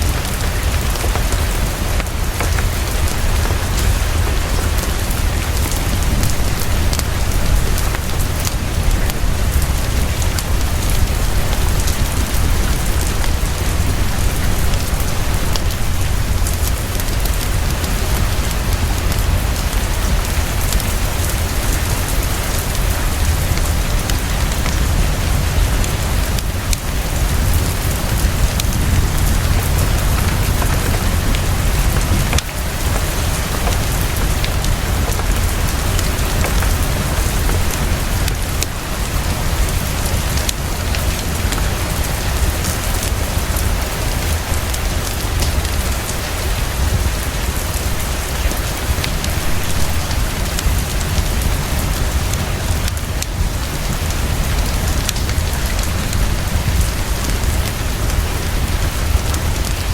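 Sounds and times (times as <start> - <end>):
deep low rumble: 0.0 - 41.7
heavy rain pouring: 0.0 - 59.9.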